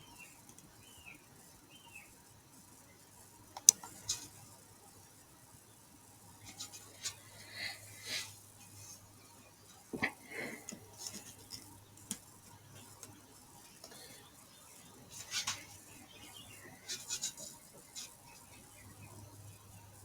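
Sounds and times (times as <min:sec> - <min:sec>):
faint low hum: 0:00.0 - 0:20.0
mouse and keyboard clicks: 0:03.6 - 0:04.2.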